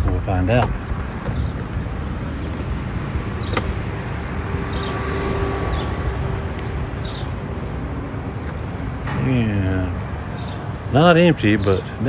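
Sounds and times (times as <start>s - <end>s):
vehicle idling: 0.0s - 12.0s
wind on microphone: 0.0s - 12.0s.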